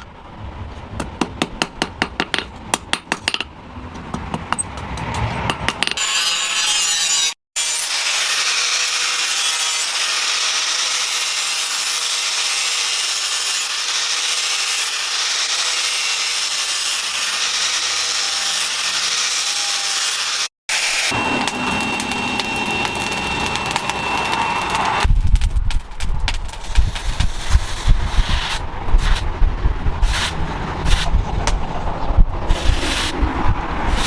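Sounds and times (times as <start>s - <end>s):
thin steady whine: 21.1s - 25.6s.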